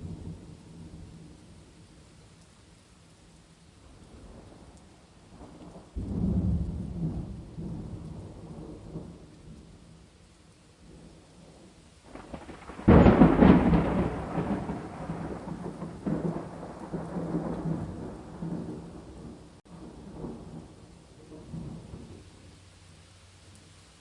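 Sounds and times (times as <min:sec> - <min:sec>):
rain: 0:00.0 - 0:24.0
thunder crack and rumble: 0:05.4 - 0:09.7, 0:12.1 - 0:22.3.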